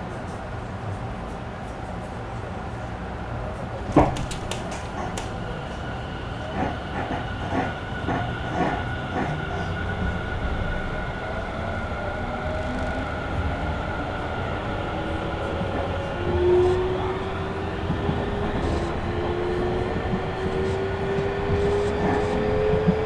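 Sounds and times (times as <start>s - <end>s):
train wheels clacking over rail joints: 3.9s - 10.2s, 12.6s - 23.0s
train motor whine: 3.9s - 23.0s.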